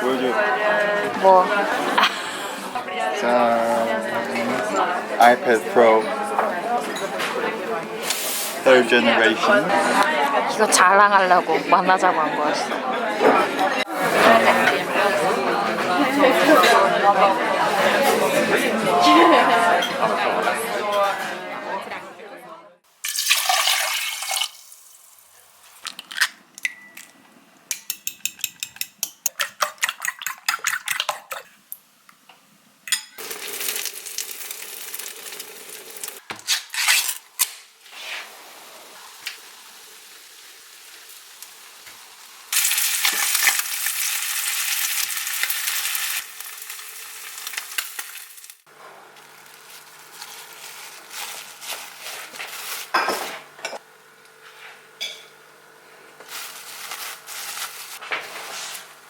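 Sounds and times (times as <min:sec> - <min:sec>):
food sizzling in a pan: 0:08.0 - 0:08.7, 0:22.9 - 0:25.8, 0:33.2 - 0:36.2, 0:37.8 - 0:53.8
pots and utensils clinking: 0:27.7 - 0:31.5, 0:32.9 - 0:37.2, 0:51.2 - 0:53.8, 0:55.0 - 0:55.4.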